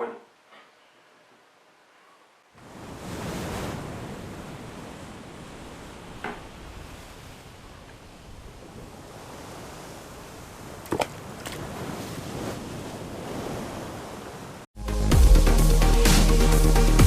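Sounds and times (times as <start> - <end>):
sea surf washing: 2.6 - 14.7.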